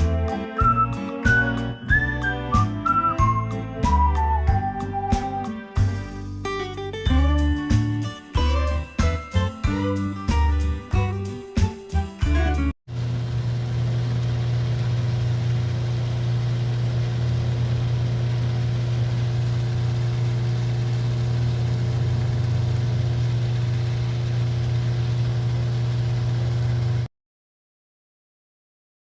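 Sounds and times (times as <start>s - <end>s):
low mechanical hum: 12.9s - 27.1s.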